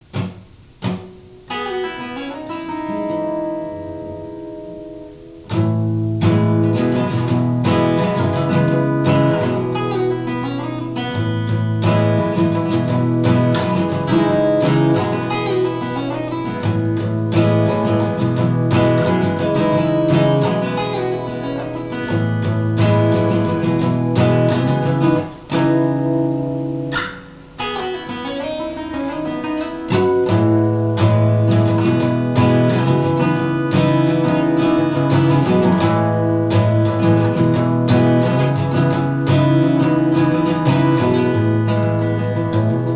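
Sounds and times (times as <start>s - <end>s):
acoustic guitar strummed chords: 0.0s - 42.9s.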